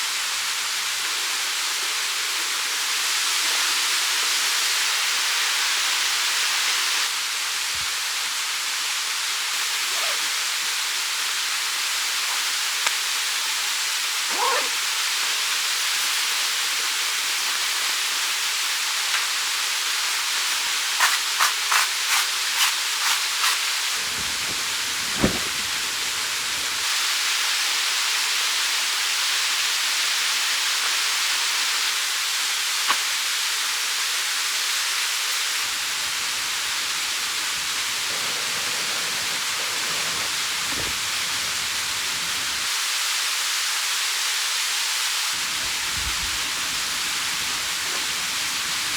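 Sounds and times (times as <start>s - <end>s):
mountain stream rushing: 22.6s - 27.0s, 35.6s - 42.7s, 45.4s - 48.9s.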